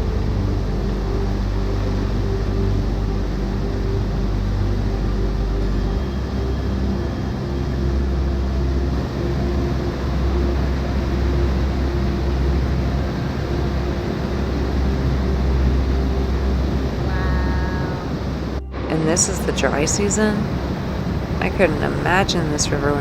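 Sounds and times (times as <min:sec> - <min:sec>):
waterfall rushing: 0:08.9 - 0:18.6.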